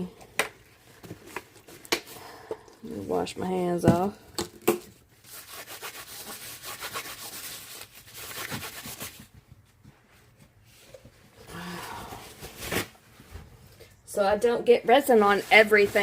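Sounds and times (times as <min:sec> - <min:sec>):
soft rustling: 0:14.9 - 0:16.0.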